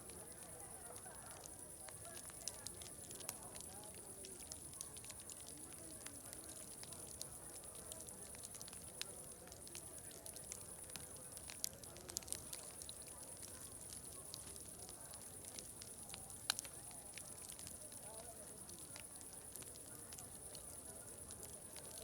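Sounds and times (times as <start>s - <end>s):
distant crowd chatter: 0.0s - 22.0s
wood fire crackling and popping: 0.0s - 22.0s.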